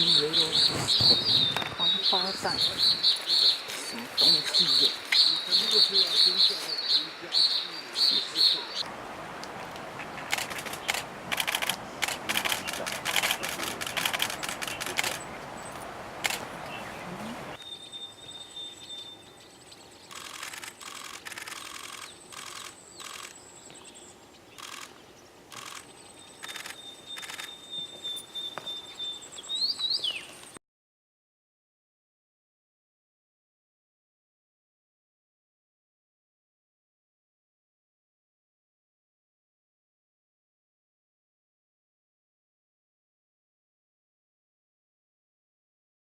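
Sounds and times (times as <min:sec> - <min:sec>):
camera shutter firing in bursts: 0:10.3 - 0:15.2, 0:20.1 - 0:23.4, 0:24.6 - 0:24.9, 0:25.5 - 0:27.6.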